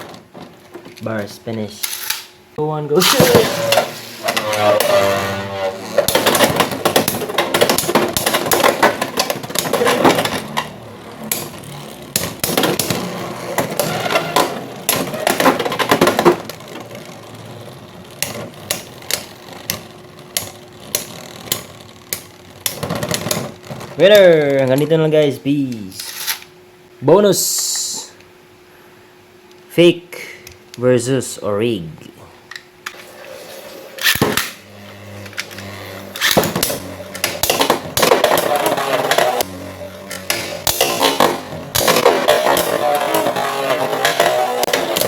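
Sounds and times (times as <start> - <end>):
spinning tops whirring: 2.9 - 24.7, 32.9 - 45.0
spinning tops humming: 32.9 - 45.0.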